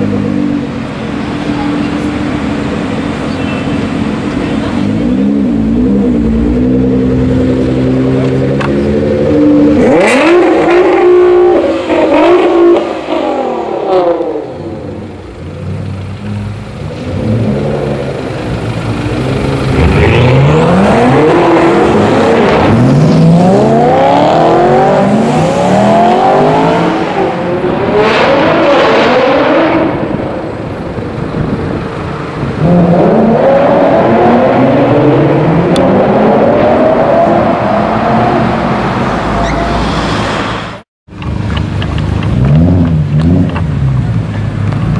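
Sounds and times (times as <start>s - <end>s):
car engine idling and revving: 0.0s - 44.9s.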